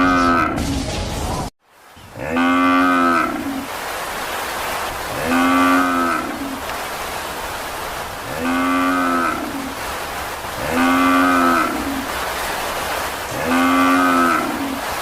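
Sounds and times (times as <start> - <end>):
cow mooing: 2.2 - 3.6, 5.1 - 6.5, 8.3 - 9.6, 10.6 - 12.0, 13.3 - 14.8.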